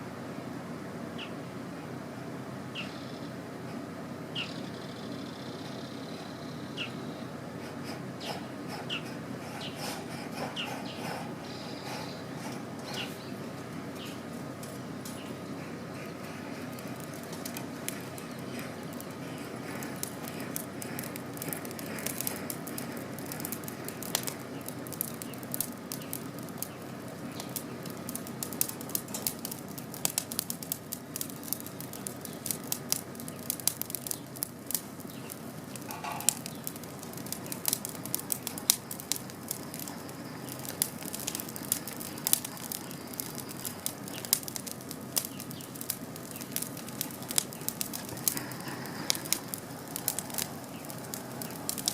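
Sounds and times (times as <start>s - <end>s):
campfire crackling and popping: 7.6s - 51.9s.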